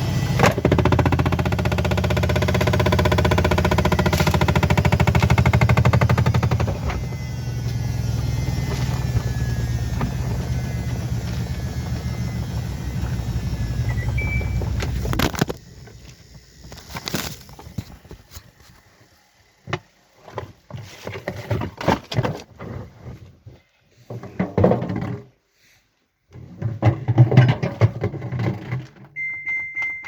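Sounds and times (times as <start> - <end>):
washing machine running: 0.0 - 15.0.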